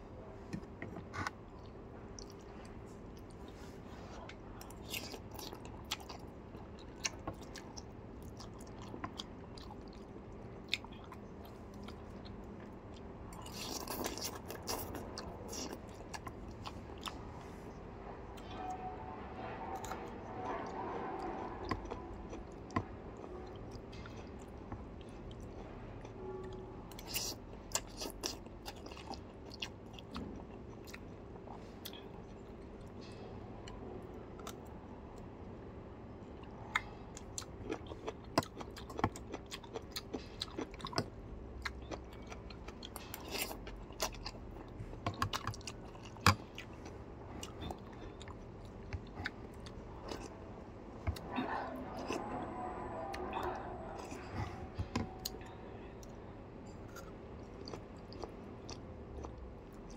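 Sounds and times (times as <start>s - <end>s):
wet chewing and mouth clicks: 56.8s - 59.9s.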